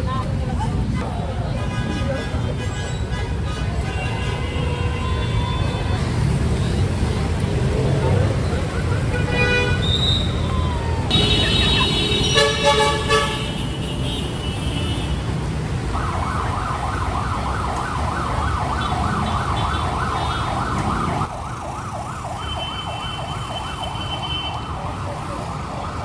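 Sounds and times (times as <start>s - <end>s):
road traffic rumble: 0.0s - 26.0s
vehicle horn: 9.0s - 10.3s, 11.1s - 15.4s
emergency siren yelping: 9.9s - 11.9s, 15.8s - 26.0s.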